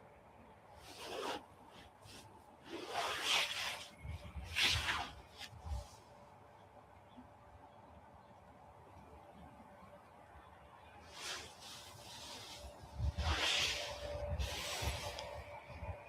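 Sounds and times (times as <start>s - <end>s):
rubbing and rustling: 0.8s - 6.2s, 11.1s - 16.0s.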